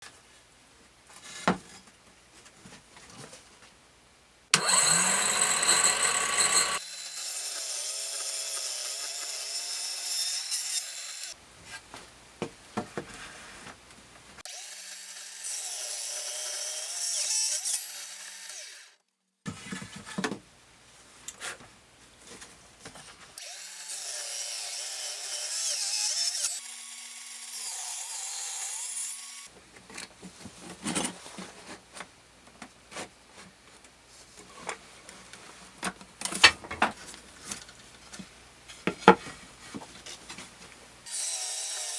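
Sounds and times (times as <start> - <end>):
power tool cutting wood: 4.5 - 11.4, 14.5 - 18.9, 23.4 - 29.5, 41.1 - 41.9.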